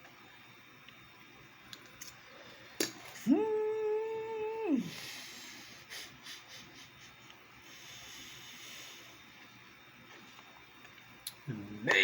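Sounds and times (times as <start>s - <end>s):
man humming while eating: 3.2s - 5.2s.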